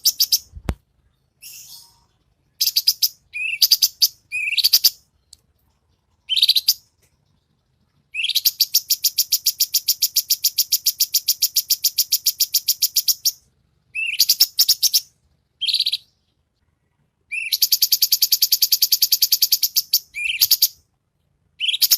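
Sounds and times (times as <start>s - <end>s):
bird singing fast trills: 0.0s - 0.5s, 1.3s - 5.1s, 6.3s - 6.9s, 8.1s - 16.3s, 17.3s - 20.8s, 21.6s - 21.9s.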